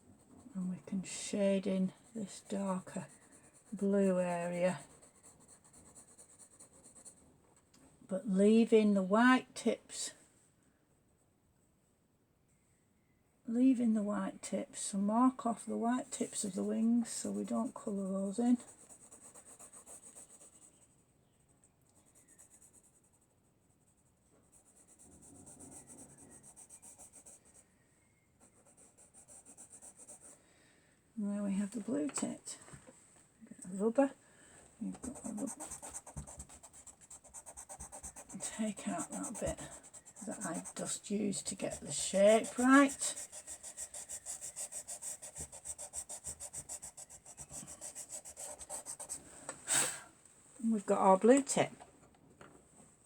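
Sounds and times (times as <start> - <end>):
pencil scratching on paper: 0.2 - 7.2, 16.1 - 21.0, 22.0 - 27.8, 28.4 - 30.4, 34.9 - 49.2
eraser scrubbing on paper: 35.0 - 49.2.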